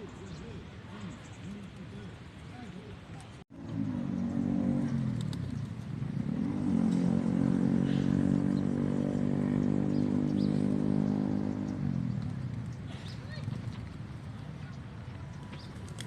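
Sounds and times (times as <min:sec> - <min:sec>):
engine running: 0:03.5 - 0:14.2.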